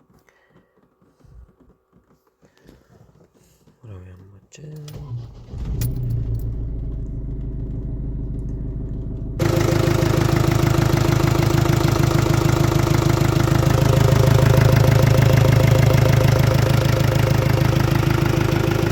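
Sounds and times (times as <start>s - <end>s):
diesel engine idling: 4.9s - 18.9s.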